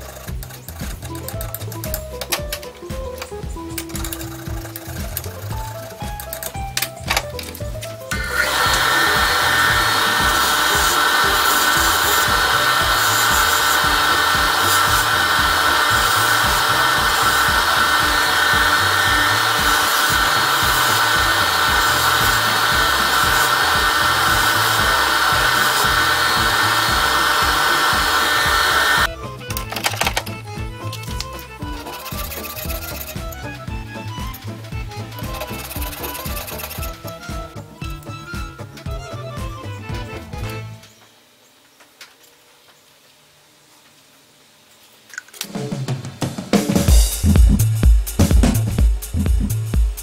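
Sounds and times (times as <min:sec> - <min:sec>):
jazz background music: 0:00.0 - 0:41.0, 0:45.4 - 0:50.0
abrasive wheel whining: 0:03.1 - 0:40.5
hand file scraping: 0:08.1 - 0:29.1, 0:31.2 - 0:33.6.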